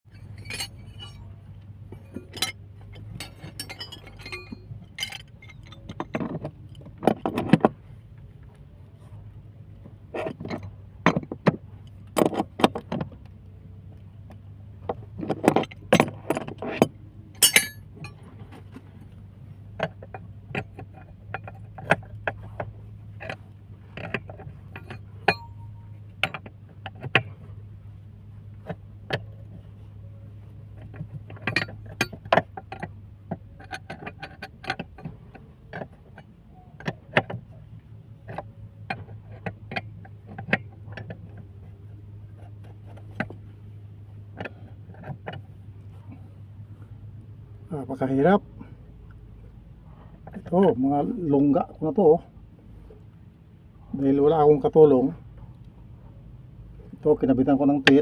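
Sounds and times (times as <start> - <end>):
steady low hum: 0.0 - 58.0
metallic clinks of tools: 0.2 - 1.2, 2.0 - 6.0, 17.4 - 18.2, 24.8 - 25.9.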